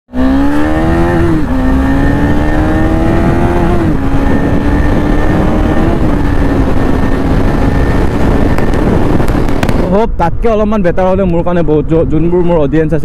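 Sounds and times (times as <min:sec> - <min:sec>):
motorcycle engine shifting gears: 0:00.1 - 0:09.9.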